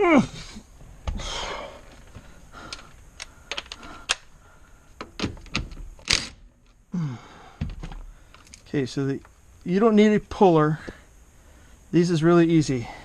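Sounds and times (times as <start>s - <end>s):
breathy noise: 0.0s - 5.0s, 6.9s - 8.7s.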